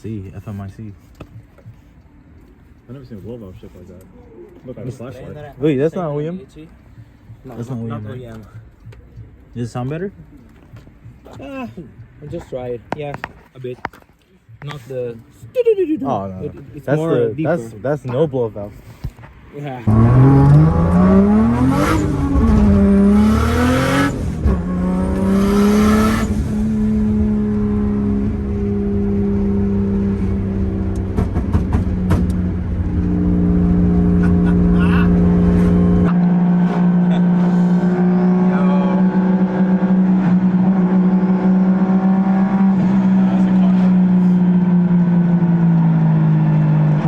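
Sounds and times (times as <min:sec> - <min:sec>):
car engine revving and idling: 0:19.8 - 0:47.0.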